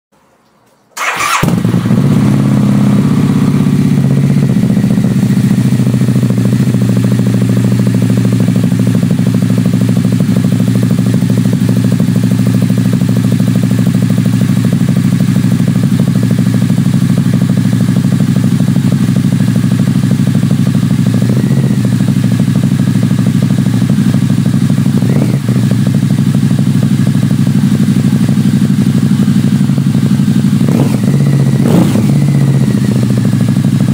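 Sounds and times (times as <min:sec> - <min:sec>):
motorcycle engine starting and idling: 0:01.0 - 0:33.9.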